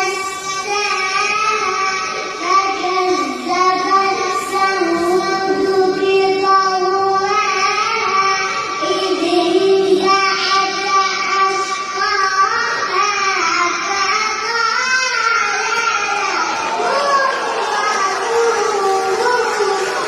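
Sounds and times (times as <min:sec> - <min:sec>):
child reciting in melodic chant: 0:00.0 - 0:20.0.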